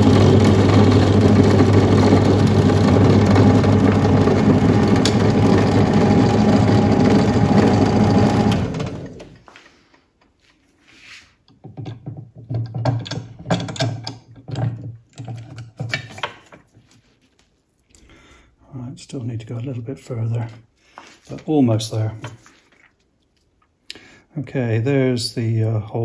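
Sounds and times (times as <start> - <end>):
electric drill running: 0.0 - 9.3.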